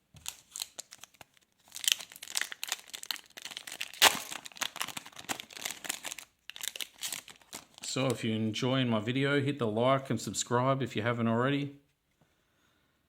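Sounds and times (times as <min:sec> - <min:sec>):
plastic wrapper crinkling and tearing: 0:00.2 - 0:08.1.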